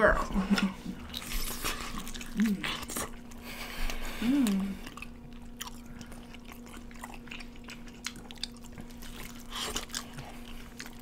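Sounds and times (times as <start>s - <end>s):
steady low hum: 0.0s - 11.0s
crunchy chicken being chewed: 0.5s - 11.0s.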